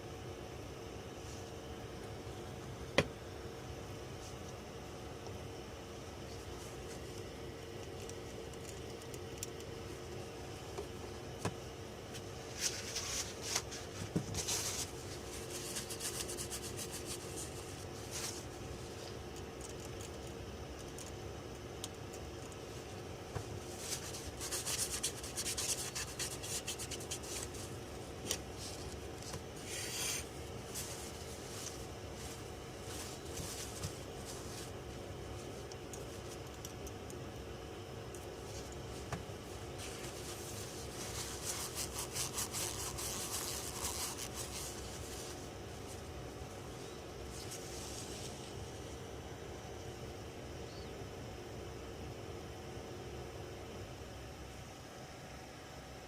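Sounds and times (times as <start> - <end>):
scratchy rubbing and scraping: 12.6 - 18.4, 23.7 - 27.7, 28.6 - 34.8, 39.8 - 45.4.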